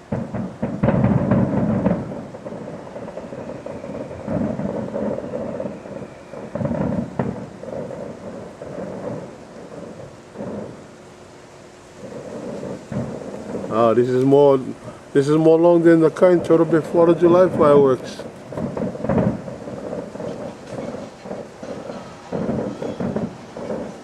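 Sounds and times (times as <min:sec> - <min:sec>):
distant fireworks booming: 0:00.0 - 0:24.0
fireworks crackle: 0:00.0 - 0:24.0
sharp bang: 0:12.0 - 0:24.0.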